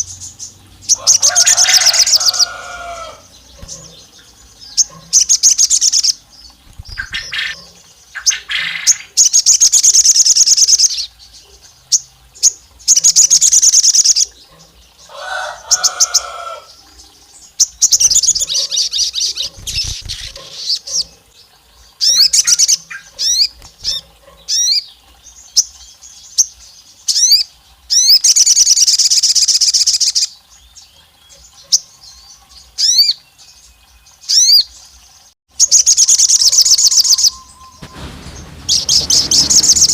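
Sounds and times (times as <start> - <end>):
buzzy bird chattering: 6.7 - 7.6, 17.9 - 21.1
bird singing high trills: 35.7 - 39.9.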